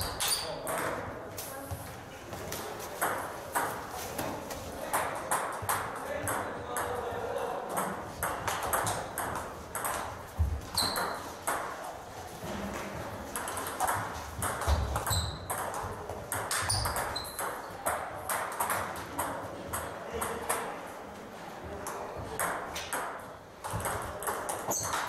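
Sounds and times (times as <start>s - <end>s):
table tennis balls clicking: 7.7s - 10.2s, 12.8s - 20.7s, 21.9s - 25.0s.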